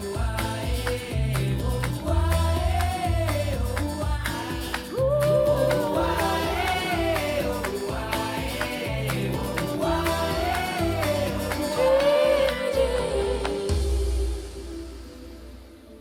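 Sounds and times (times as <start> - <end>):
heavy bass line: 0.0 - 12.0
steady drum beat: 0.0 - 14.4
pop song over speakers: 0.0 - 16.0
sung vocal notes: 0.0 - 16.0.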